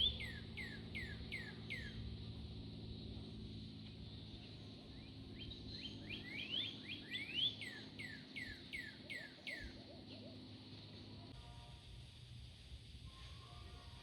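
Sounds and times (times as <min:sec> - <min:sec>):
songbird singing sweeping notes: 0:00.0 - 0:02.3, 0:04.0 - 0:11.2.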